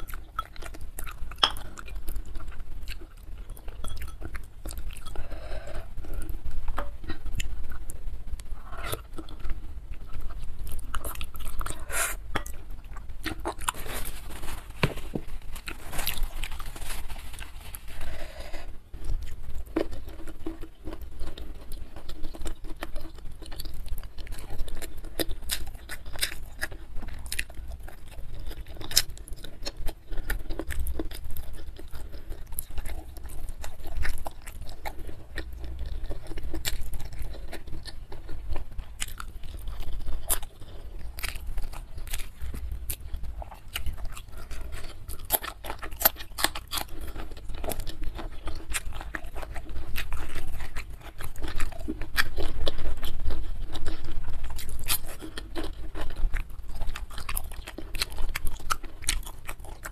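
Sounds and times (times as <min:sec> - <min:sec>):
wet chewing and mouth smacking: 0:00.0 - 0:14.3, 0:18.9 - 0:59.9
clicks and crunches of chewing: 0:15.4 - 0:59.9.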